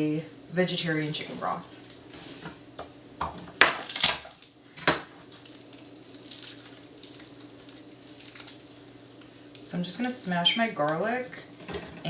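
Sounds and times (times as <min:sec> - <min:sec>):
utensils being handled: 0:00.8 - 0:02.6.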